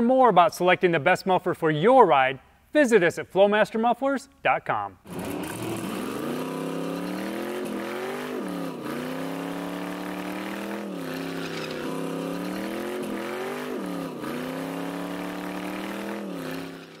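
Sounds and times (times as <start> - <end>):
engine revving hard: 5.1 - 17.0
tyre spinning: 11.2 - 12.9.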